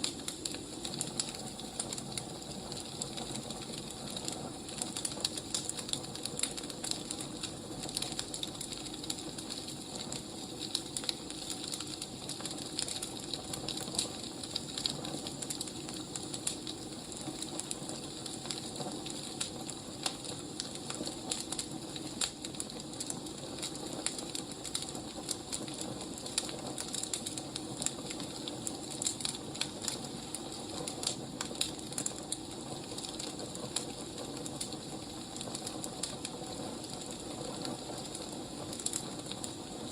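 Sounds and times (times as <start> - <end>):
firewood crackling: 0.0 - 39.9
low fire hiss: 0.0 - 39.9.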